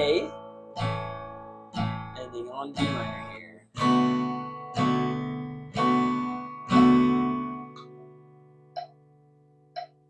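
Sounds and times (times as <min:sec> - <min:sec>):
guitar chord strummed: 0:00.0 - 0:10.0
metronome clicks: 0:08.7 - 0:09.1, 0:09.7 - 0:10.0.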